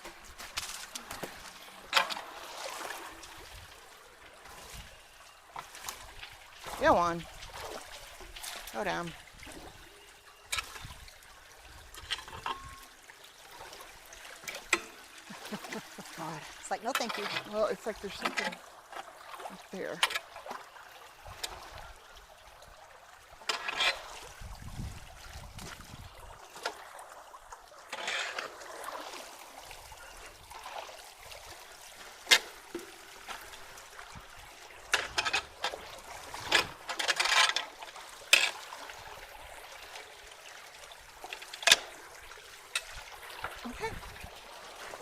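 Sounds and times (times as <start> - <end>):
water trickling through culvert: 0.0 - 45.0
short splashes: 0.3 - 3.8, 5.6 - 9.7.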